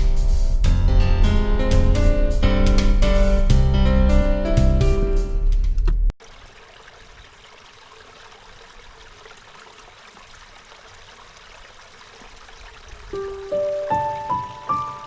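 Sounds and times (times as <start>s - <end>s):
flowing water: 6.2s - 15.0s.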